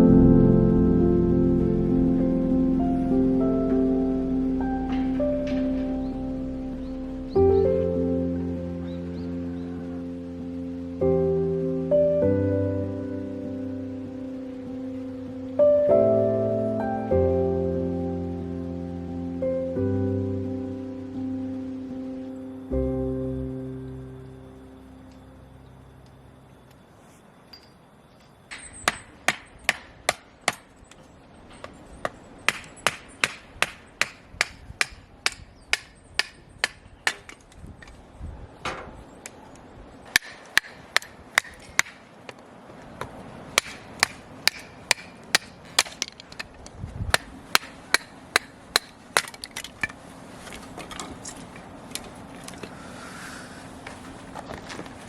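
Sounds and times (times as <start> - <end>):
sharp knocks of hard strikes: 43.6 - 46.0.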